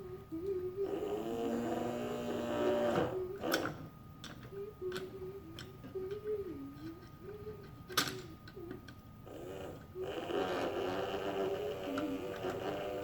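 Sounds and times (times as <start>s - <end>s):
person humming: 0.0s - 3.8s, 4.5s - 13.0s
clicks of parts being handled: 3.4s - 9.0s.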